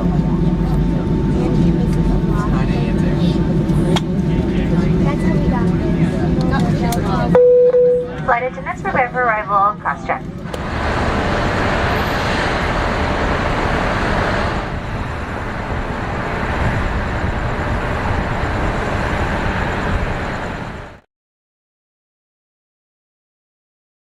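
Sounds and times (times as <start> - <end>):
vehicle running rumble and hiss: 10.3 - 21.0.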